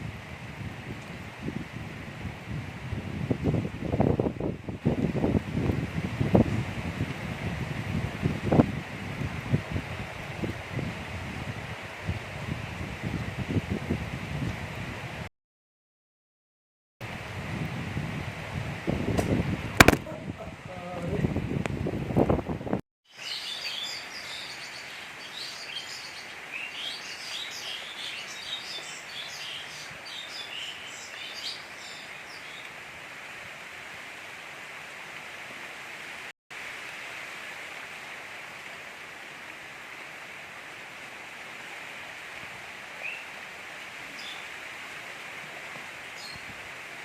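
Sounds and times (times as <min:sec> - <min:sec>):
gentle rain hiss: 0:00.0 - 0:15.3, 0:17.0 - 0:22.5, 0:23.1 - 0:47.0
birds chirping: 0:23.2 - 0:32.7.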